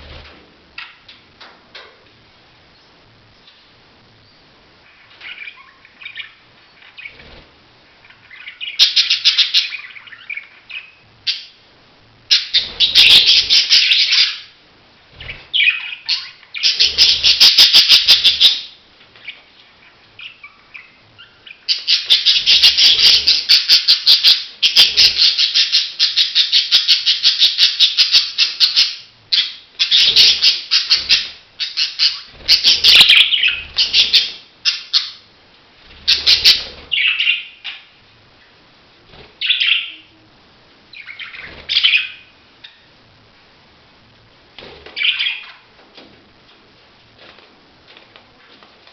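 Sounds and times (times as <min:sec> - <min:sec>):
budgies chattering and warbling: 0:04.9 - 0:11.6, 0:12.3 - 0:35.2, 0:35.8 - 0:38.0, 0:39.1 - 0:40.2, 0:40.9 - 0:42.9, 0:44.6 - 0:45.7.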